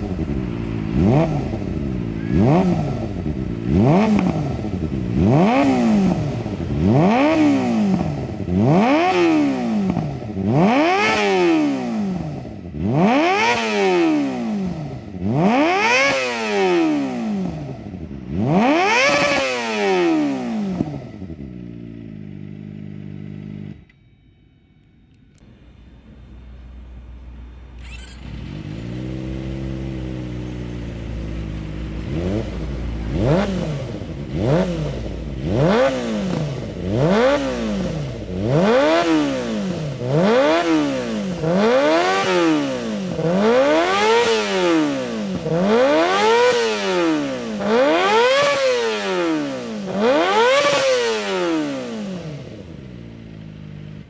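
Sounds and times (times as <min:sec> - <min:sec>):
motorcycle engine idling: 0:00.0 - 0:10.7, 0:20.8 - 0:23.9, 0:25.4 - 0:44.0, 0:51.7 - 0:54.0
motorcycle throttle blips: 0:00.0 - 0:24.1, 0:27.8 - 0:54.0.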